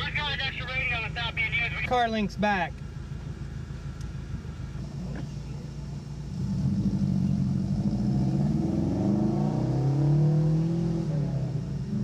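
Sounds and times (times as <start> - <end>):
car engine revving: 2.8 - 12.0.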